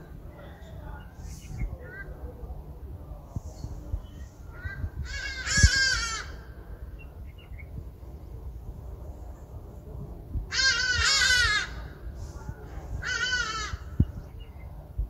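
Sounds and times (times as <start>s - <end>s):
bird crying: 4.5s - 6.5s, 10.5s - 12.0s, 13.0s - 14.1s.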